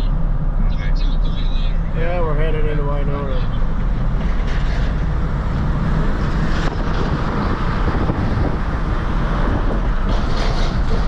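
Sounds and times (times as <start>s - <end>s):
truck road noise: 0.0s - 11.0s
wind noise: 4.0s - 11.0s.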